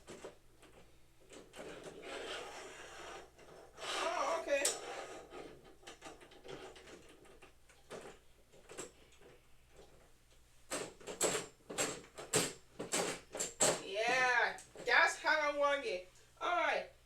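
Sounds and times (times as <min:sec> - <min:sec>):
hard parts clicking and tapping: 0:04.5 - 0:13.9.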